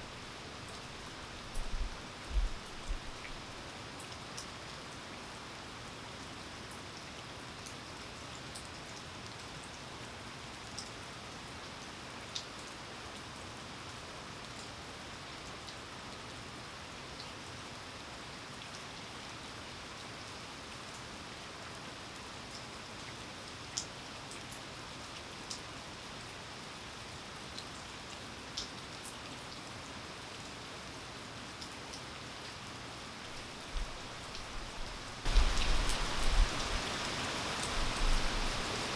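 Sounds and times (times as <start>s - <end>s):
rain falling: 0.0s - 7.0s, 30.4s - 38.9s
single raindrops ticking: 33.3s - 38.9s.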